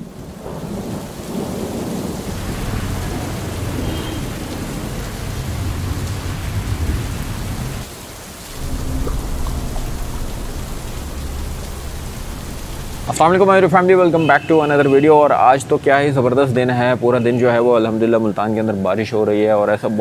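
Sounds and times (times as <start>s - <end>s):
low rumble of thunder: 0.0s - 14.0s
heavy rain on standing water: 0.0s - 19.4s.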